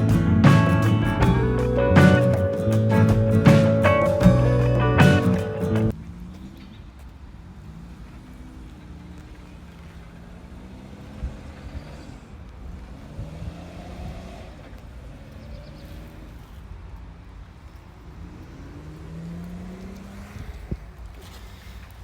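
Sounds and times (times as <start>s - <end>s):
vehicle engine running: 0.0s - 6.6s
low road rumble: 0.0s - 22.0s.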